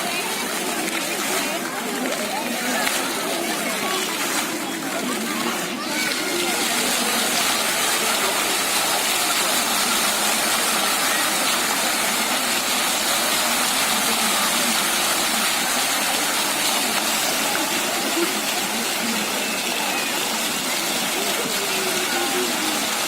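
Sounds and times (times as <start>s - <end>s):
water fountain splashing: 0.0s - 23.0s.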